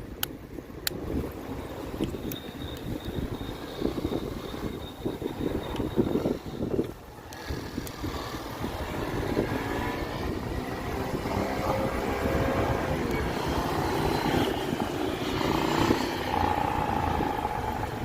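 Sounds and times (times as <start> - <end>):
wind buffeting microphone: 0.0 - 18.0
vehicle engine droning past: 7.5 - 18.0.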